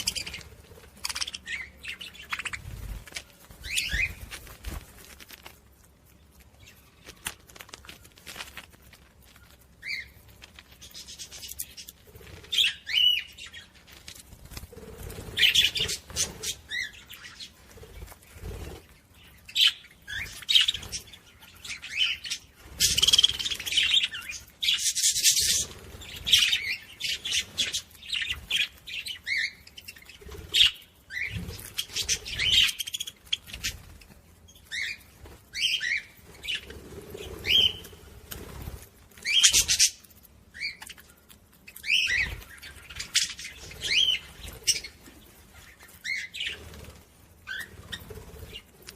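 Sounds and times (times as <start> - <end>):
budgerigars chirping: 0.0 - 4.2, 15.3 - 17.6, 19.2 - 33.8, 41.8 - 46.6
wings flapping: 0.0 - 41.0, 41.8 - 48.9.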